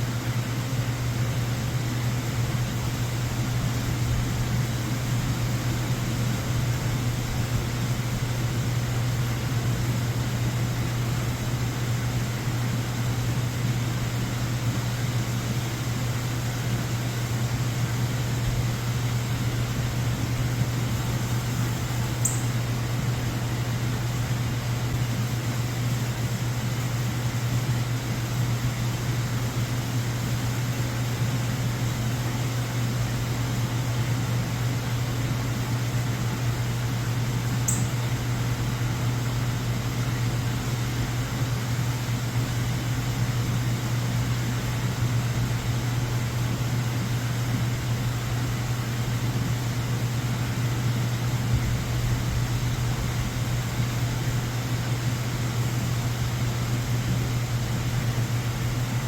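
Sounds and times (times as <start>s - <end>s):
constant low hum: 0.0s - 59.0s
high chirps: 22.2s - 22.6s, 37.7s - 38.1s.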